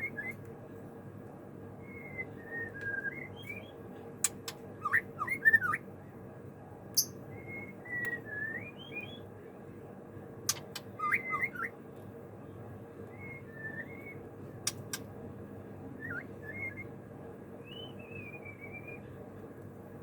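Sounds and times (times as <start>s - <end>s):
bird singing whistled phrases: 1.8s - 3.8s, 7.0s - 9.2s, 11.0s - 11.7s, 13.1s - 14.2s, 16.0s - 16.9s, 17.6s - 19.1s.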